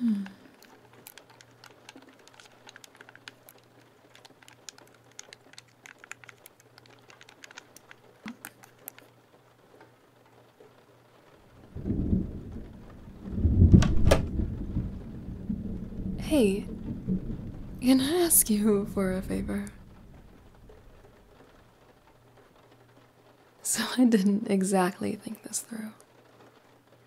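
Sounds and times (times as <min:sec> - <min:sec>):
steady rain: 0:00.0 - 0:27.0
thunder rumble and crack: 0:11.4 - 0:22.7.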